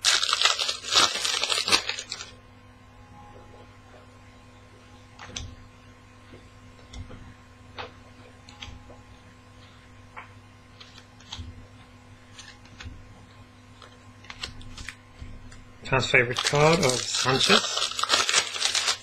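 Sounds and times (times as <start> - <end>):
wrapper crinkling: 0.0 - 2.3, 14.2 - 15.0, 16.2 - 19.0
electrical hum: 0.0 - 19.0.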